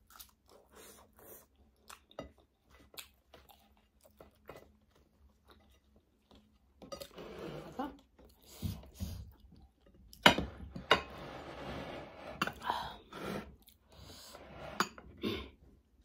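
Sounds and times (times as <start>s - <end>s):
close-up chewing: 0.0s - 7.1s.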